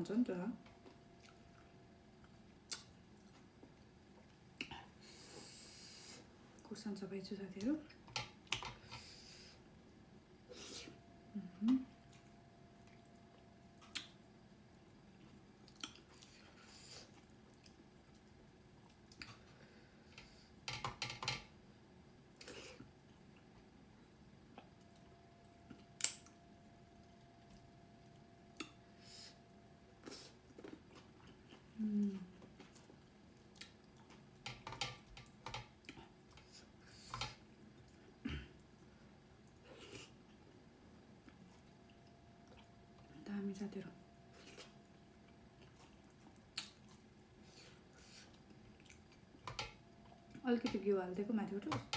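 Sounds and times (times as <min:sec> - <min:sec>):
chewing: 0:00.8 - 0:03.5, 0:44.3 - 0:50.4
wet mouth clicks: 0:13.8 - 0:14.2, 0:26.0 - 0:26.3.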